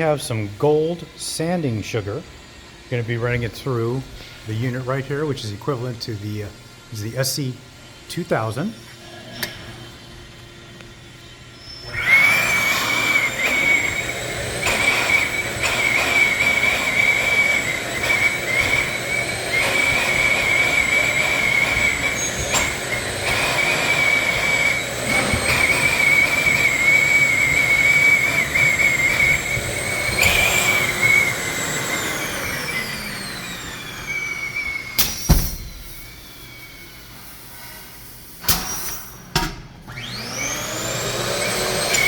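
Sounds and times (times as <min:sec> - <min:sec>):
pneumatic conveyor whining: 0:08.9 - 0:10.1, 0:11.0 - 0:42.0.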